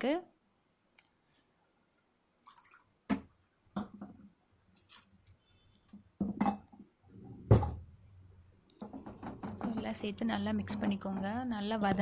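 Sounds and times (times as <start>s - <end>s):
soft wet squelches: 0.8s - 6.2s.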